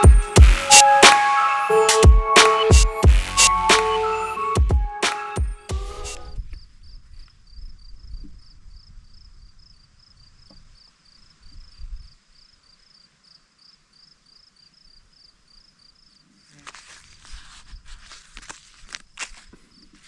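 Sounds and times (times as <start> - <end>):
cricket chirping: 6.5 - 17.2
crinkling and clicks of handling: 16.6 - 20.0.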